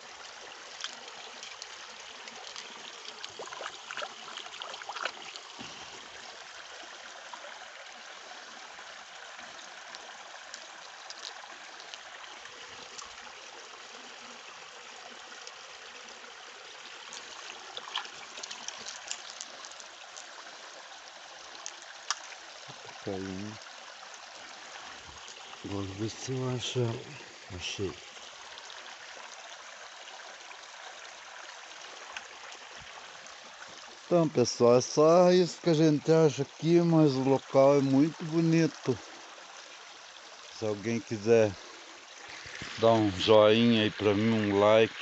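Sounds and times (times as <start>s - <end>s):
stream water flowing: 0.0s - 45.0s.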